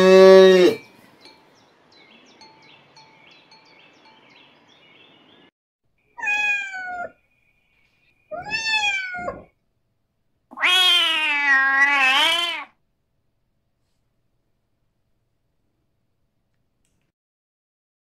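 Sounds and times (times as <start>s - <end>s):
cat meowing: 6.2s - 7.2s, 8.3s - 9.6s, 10.5s - 12.8s.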